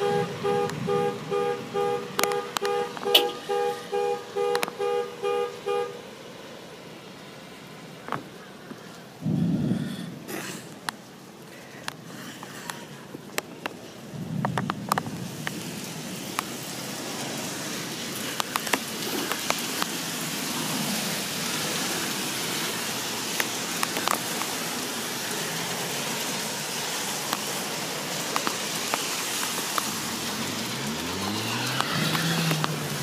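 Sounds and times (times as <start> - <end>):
rain on wet pavement: 0.0 - 33.0
vehicle engine passing: 29.9 - 33.0.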